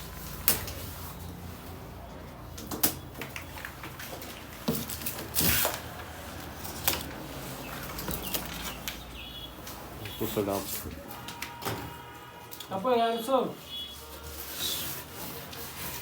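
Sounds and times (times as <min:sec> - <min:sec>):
packaging rustling: 0:03.2 - 0:09.1.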